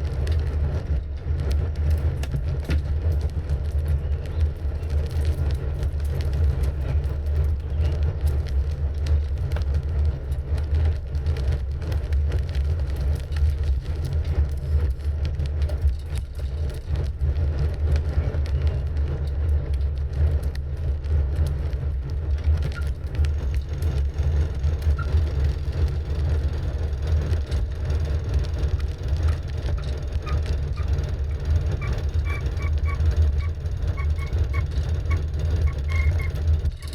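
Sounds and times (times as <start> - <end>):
wind buffeting microphone: 16.5 - 36.9.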